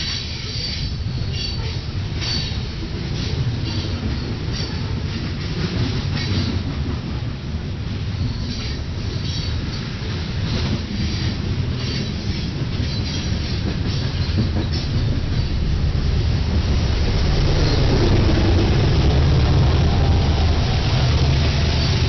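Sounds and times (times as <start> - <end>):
wheels clicking over rail joints: 8.0 - 15.9
low engine drone: 15.1 - 22.0.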